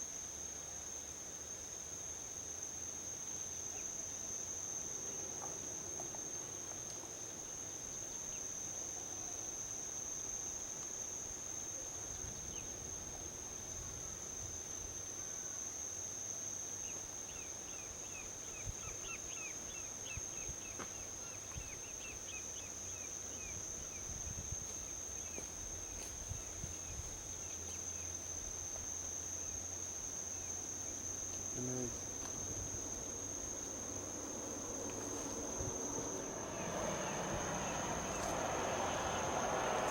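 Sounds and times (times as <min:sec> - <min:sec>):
insects trilling: 0:00.9 - 0:39.9
distant highway traffic: 0:32.0 - 0:39.9.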